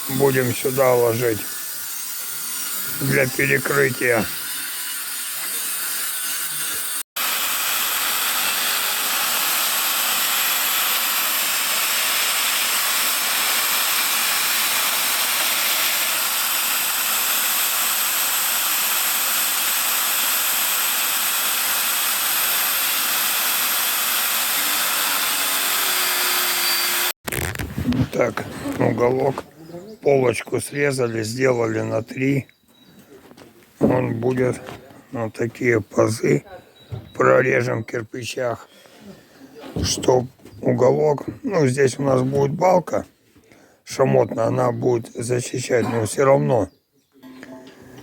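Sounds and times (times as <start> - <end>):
angle grinder cutting steel: 0.0 - 27.6.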